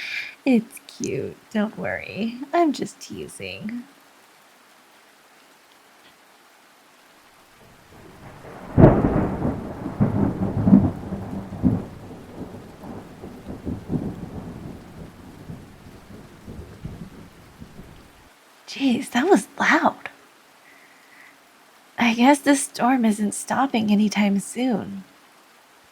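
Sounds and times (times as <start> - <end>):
steady rain: 0.0 - 25.9
thunderclap: 7.6 - 18.2.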